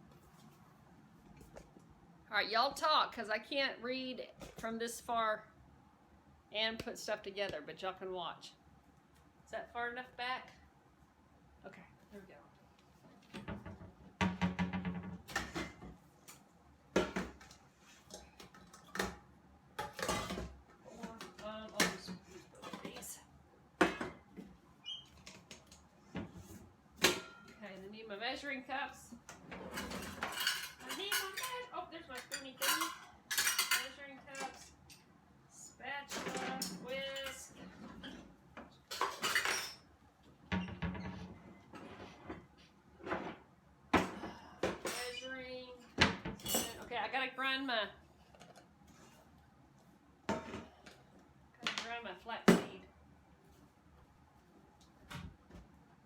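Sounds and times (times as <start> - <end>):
dishes and utensils clattering: 19.8 - 23.1, 29.5 - 35.0, 38.9 - 39.9, 44.0 - 45.3, 46.0 - 46.9.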